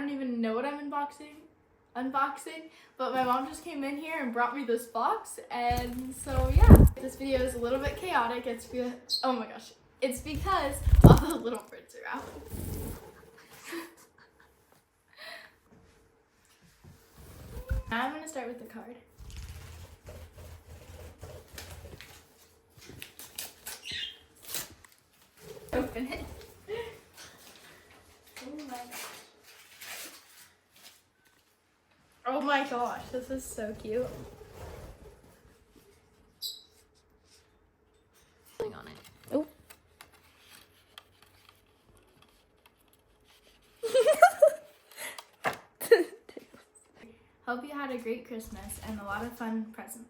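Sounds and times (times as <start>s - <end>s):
handling noises: 5.7s - 8.2s, 10.2s - 11.4s
person giggling: 13.4s - 14.6s, 43.8s - 46.7s
bird chirp: 23.8s - 24.2s
paper crinkling and rustling: 26.8s - 31.6s, 38.6s - 45.0s.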